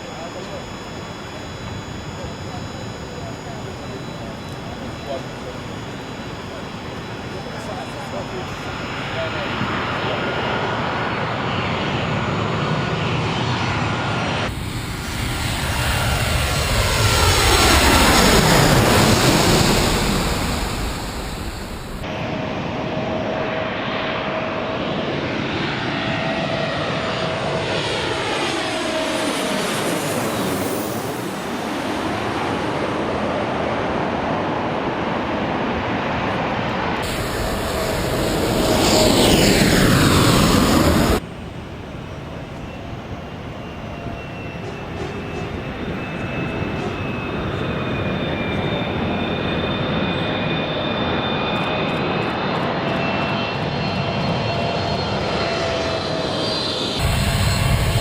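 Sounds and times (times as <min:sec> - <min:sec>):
airliner flying overhead: 0:00.0 - 0:58.0.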